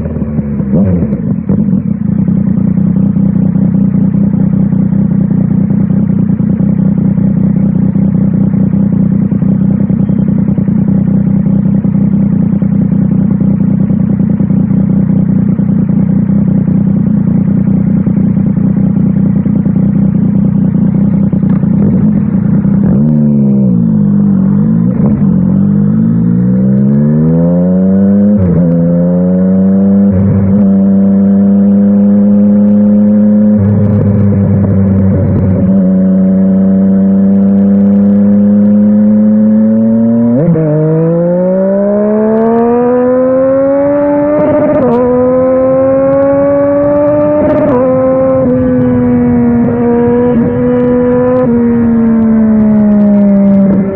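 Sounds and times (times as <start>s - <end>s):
motorcycle engine revving and shifting: 0.0s - 53.9s.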